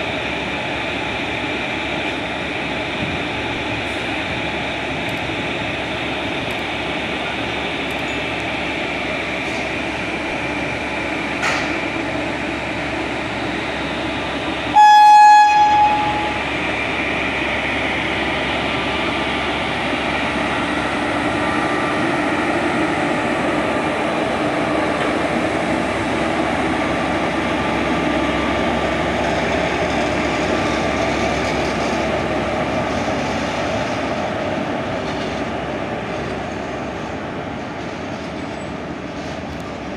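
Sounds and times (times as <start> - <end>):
train rail and wheel noise: 0.0 - 39.9
locomotive horn blast: 14.7 - 16.4.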